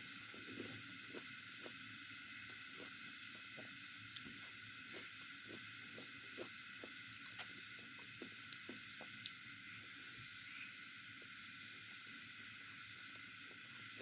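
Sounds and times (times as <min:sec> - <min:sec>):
insects chirping: 0:00.0 - 0:14.0
soft chewing: 0:00.1 - 0:09.6.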